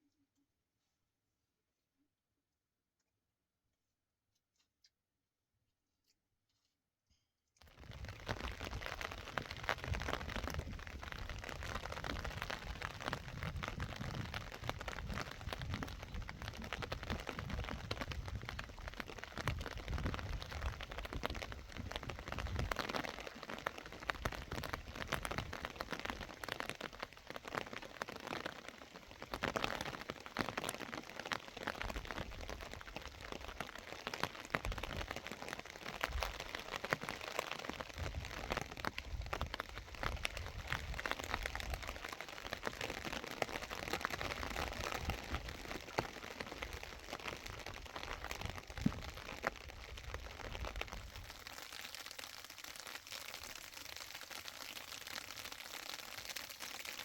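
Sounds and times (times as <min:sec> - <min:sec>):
steady rain falling: 0:07.7 - 0:57.0.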